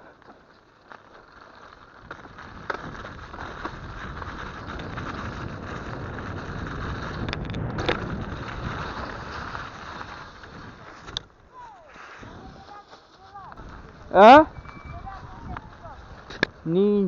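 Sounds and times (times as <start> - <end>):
bike clicks and rattles: 0.0 - 11.5
bike tyres on snow: 0.0 - 17.0
wind on microphone: 2.4 - 11.2, 13.6 - 17.0.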